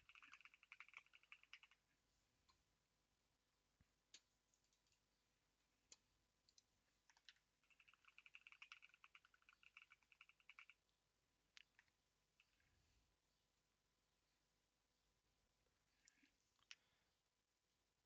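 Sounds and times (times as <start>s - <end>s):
typing on computer keyboard: 0.0s - 1.8s, 6.5s - 10.8s.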